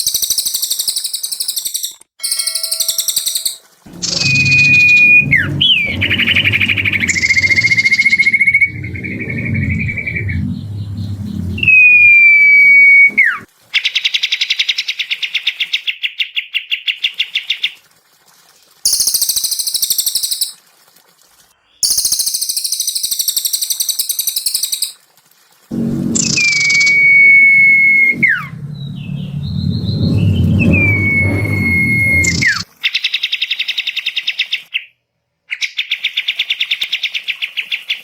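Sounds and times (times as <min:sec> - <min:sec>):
long whistle sliding down: 0:02.2 - 0:13.5, 0:25.7 - 0:32.6
high fast chattering trills: 0:02.3 - 0:13.4, 0:25.7 - 0:32.6
low background rumble: 0:03.9 - 0:13.5, 0:25.7 - 0:32.6.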